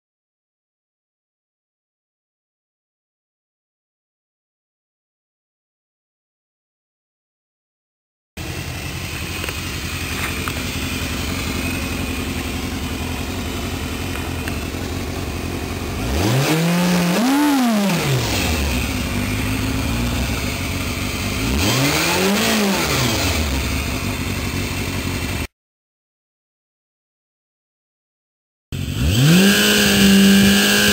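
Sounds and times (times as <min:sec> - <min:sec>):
motorcycle engine idling and revving: 0:08.4 - 0:25.5, 0:28.7 - 0:30.9.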